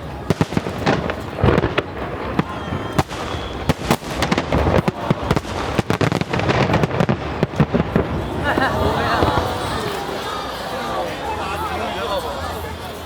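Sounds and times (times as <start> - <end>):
fireworks bangs and cracks: 0.0 - 10.5.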